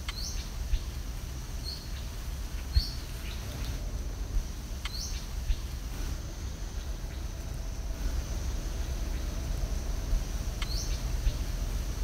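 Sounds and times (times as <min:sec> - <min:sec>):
birds chirping: 0:00.0 - 0:01.0, 0:04.6 - 0:05.8, 0:06.5 - 0:12.0
steady low rumble: 0:00.0 - 0:12.0.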